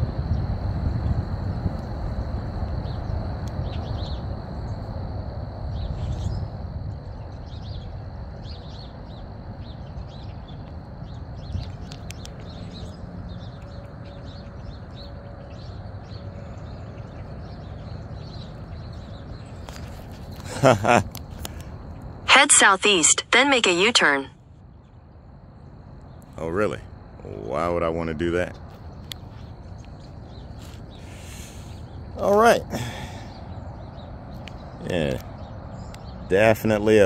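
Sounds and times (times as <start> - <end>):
wind rumble on microphone: 0.0 - 22.2
small birds chirping: 7.1 - 25.1, 26.0 - 37.0.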